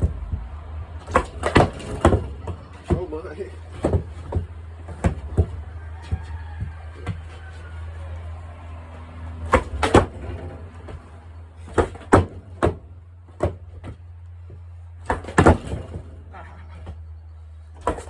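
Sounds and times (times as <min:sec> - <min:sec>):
steady low hum: 0:00.0 - 0:18.0
skateboard clacking on ground: 0:01.0 - 0:03.1, 0:03.7 - 0:06.3.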